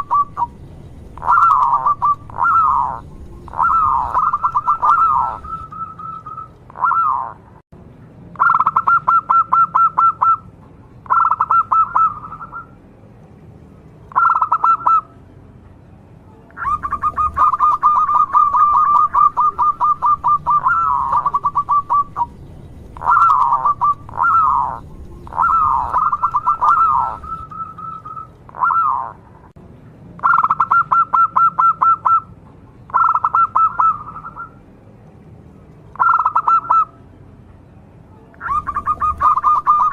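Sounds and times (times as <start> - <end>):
dove cooing: 0.0 - 7.4, 8.4 - 10.4, 11.1 - 12.7, 14.1 - 15.1, 16.6 - 22.4, 23.0 - 29.2, 32.9 - 34.6, 36.0 - 36.9, 38.4 - 39.9.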